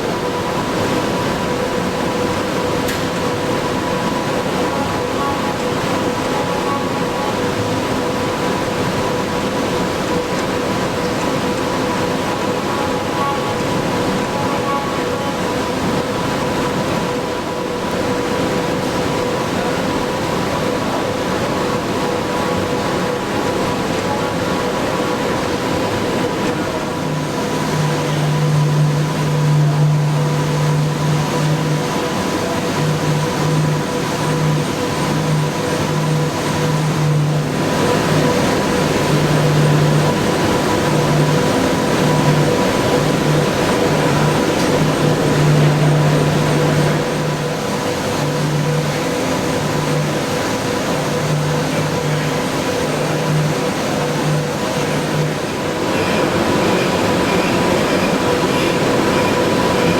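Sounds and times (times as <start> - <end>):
low machine hum: 0.0 - 59.9
milling machine cutting steel: 26.5 - 59.9.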